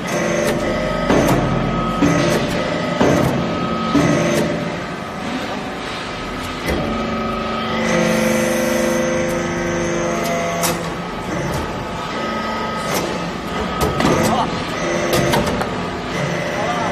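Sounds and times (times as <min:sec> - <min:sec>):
hydraulic pump hum: 0:00.0 - 0:16.9.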